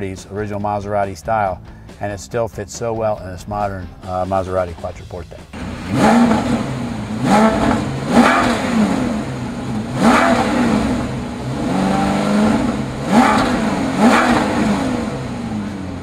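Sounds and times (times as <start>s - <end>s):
car engine revving: 5.5s - 16.0s.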